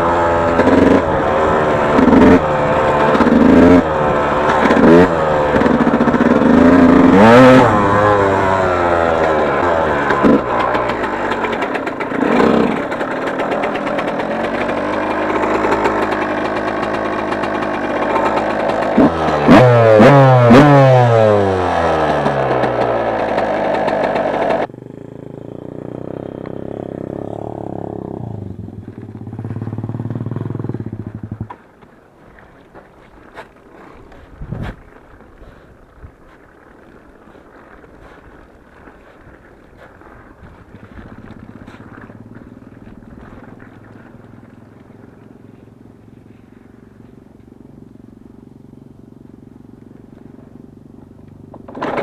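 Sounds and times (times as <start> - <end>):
motocross bike revving: 0.0 - 31.6, 33.0 - 52.0
engine knocks: 0.4 - 24.7, 49.7 - 52.0.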